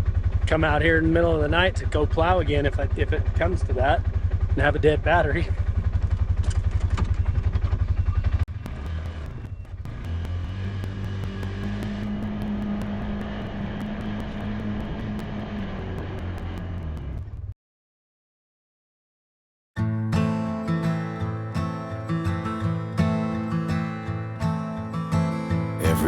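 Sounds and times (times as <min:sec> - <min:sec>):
engine idling: 0:00.0 - 0:17.4
engine running at higher speed: 0:05.4 - 0:17.5.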